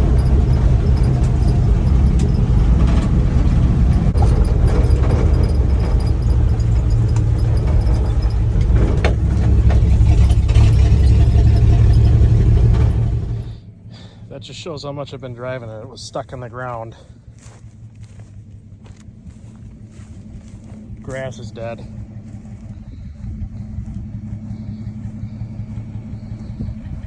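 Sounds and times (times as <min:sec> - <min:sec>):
knocks and rattles: 0:00.0 - 0:13.4
road noise: 0:00.0 - 0:27.0
truck engine droning: 0:00.0 - 0:27.0.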